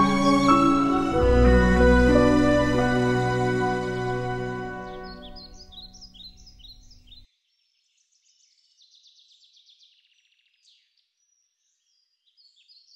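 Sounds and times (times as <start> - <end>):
soft music: 0.0 - 6.1
small birds chirping: 5.0 - 7.2.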